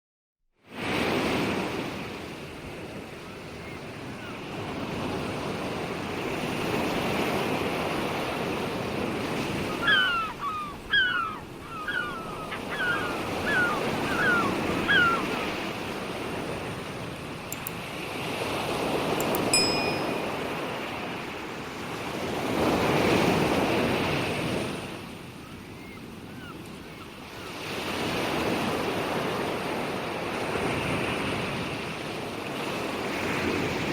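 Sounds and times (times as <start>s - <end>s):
short high chirps: 19.2s - 20.5s.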